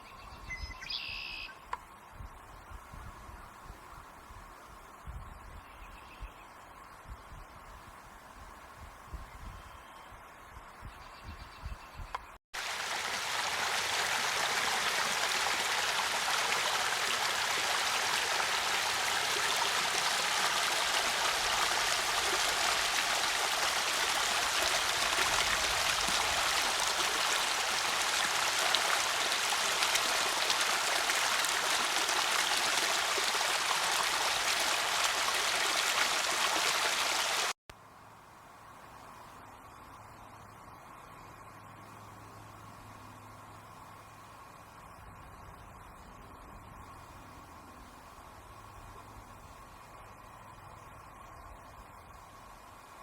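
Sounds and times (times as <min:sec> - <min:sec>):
stream water rushing: 0:12.6 - 0:37.6.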